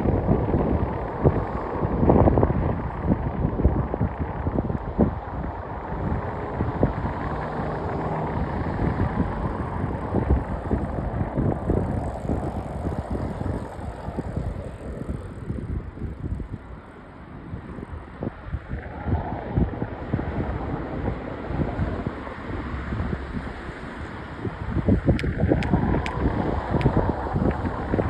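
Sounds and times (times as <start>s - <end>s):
low rumbling roar: 0.0s - 16.8s
wind buffeting microphone: 0.0s - 28.0s.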